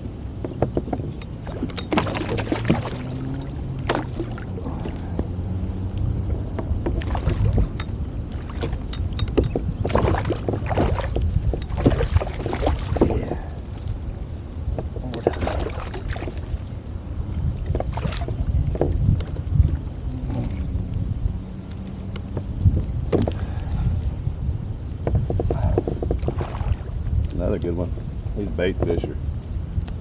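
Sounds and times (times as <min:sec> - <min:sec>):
water lapping against kayak hull: 0:00.5 - 0:20.8, 0:25.0 - 0:27.3.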